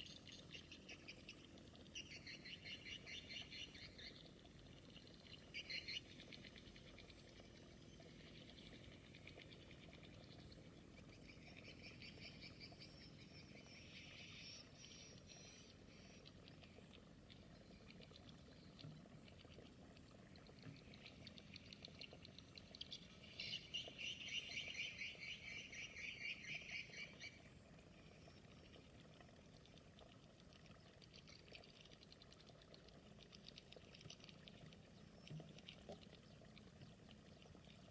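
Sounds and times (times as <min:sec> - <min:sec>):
frogs trilling: 0:00.0 - 0:19.8, 0:20.6 - 0:28.8.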